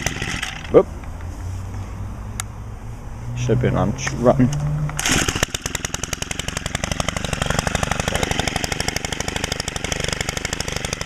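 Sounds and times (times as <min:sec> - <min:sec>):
trimmer engine idling: 0:00.0 - 0:00.8, 0:04.9 - 0:11.0.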